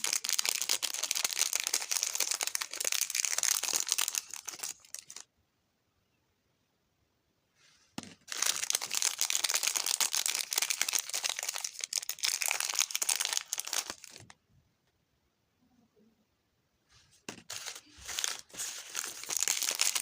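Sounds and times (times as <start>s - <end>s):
packaging crinkling and tearing: 0.0s - 5.2s, 8.2s - 14.3s, 17.3s - 20.0s.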